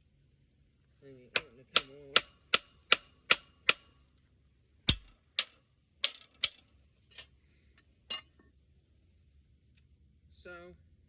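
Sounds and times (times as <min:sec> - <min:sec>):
hammer striking metal part: 0:01.4 - 0:03.9, 0:04.9 - 0:06.6.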